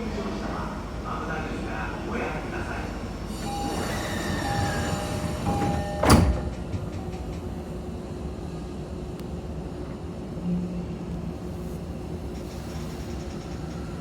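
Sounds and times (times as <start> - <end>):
train sliding doors thudding shut: 3.3 - 7.7.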